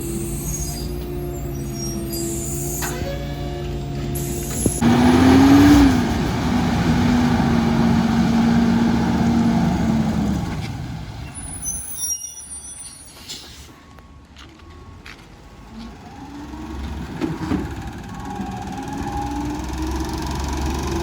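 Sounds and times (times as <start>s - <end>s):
garbage truck whine: 0.0s - 12.1s, 13.2s - 21.0s.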